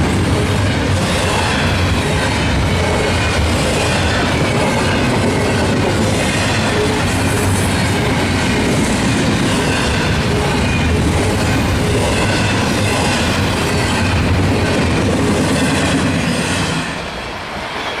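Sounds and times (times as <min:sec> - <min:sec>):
freight train rolling past: 0:00.0 - 0:18.0.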